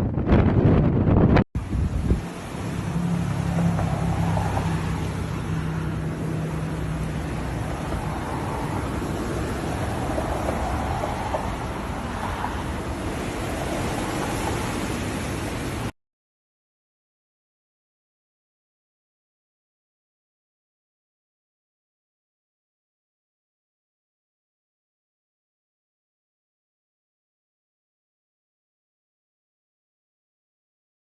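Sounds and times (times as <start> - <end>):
wind blowing hard: 0.0 - 2.8, 6.0 - 15.9.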